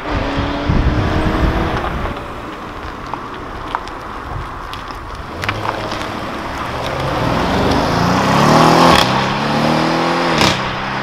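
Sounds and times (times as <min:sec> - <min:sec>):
car engine revving pulling away: 0:00.0 - 0:04.0, 0:05.1 - 0:11.0.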